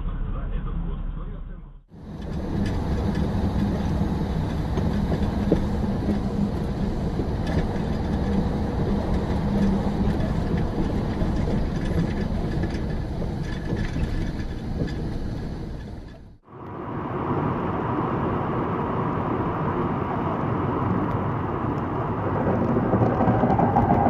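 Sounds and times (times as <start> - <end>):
low hum: 0.0 - 24.0
moving vehicle rumbling: 0.0 - 24.0
light clicks and rattles: 2.1 - 16.4.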